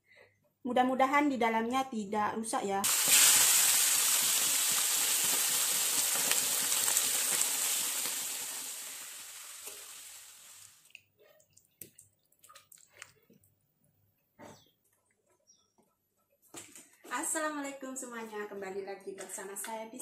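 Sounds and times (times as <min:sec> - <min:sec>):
meat sizzling in hot oil: 0:02.8 - 0:10.9.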